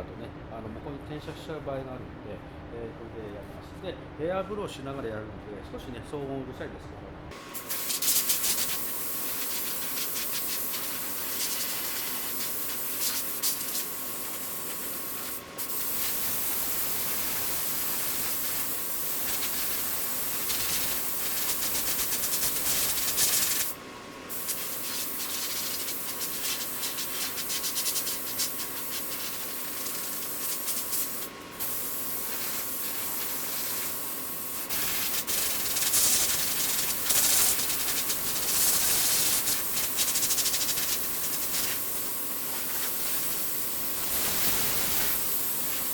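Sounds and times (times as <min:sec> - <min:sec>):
compressed air hissing: 0:07.4 - 0:45.9
sandpaper rubbing by hand: 0:07.7 - 0:18.6, 0:19.2 - 0:23.8, 0:24.4 - 0:31.3, 0:34.6 - 0:45.9.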